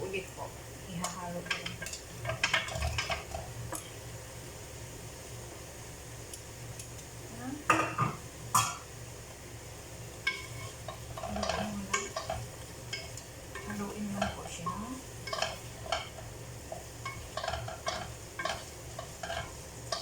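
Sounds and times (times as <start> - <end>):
utensil stirring food in a pan: 0.6 - 5.3, 9.0 - 20.0
utensil clanking against pan: 1.0 - 3.8, 10.2 - 20.0
utensil scraping pan: 10.2 - 20.0.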